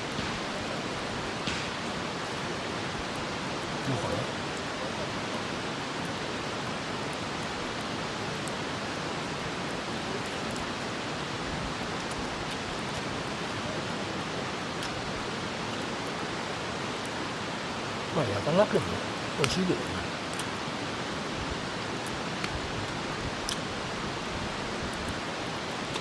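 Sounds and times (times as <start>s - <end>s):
faint small crackles: 0.0s - 17.3s, 18.7s - 26.0s.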